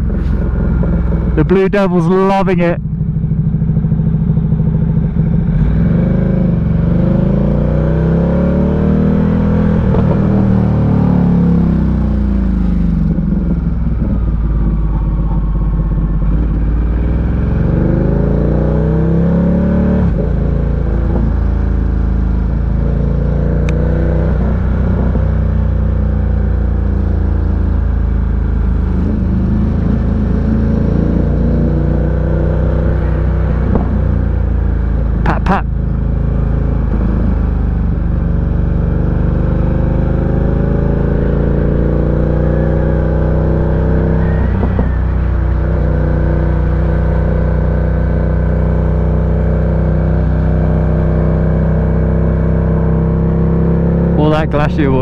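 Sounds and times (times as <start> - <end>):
rider talking: 1.4 - 2.8, 35.2 - 35.7, 54.2 - 55.0
motorcycle engine revving: 2.8 - 55.0.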